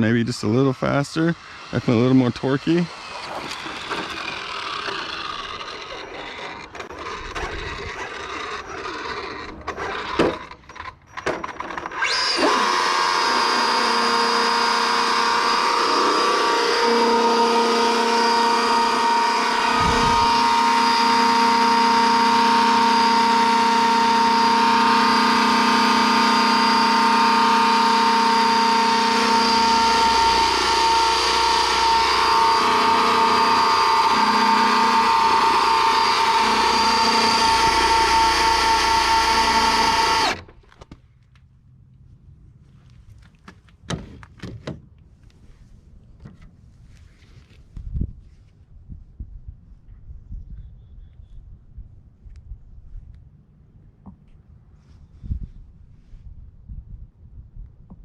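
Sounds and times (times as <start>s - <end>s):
small electric motor whine: 0.4s - 40.6s
scraping and clicking: 3.0s - 12.0s.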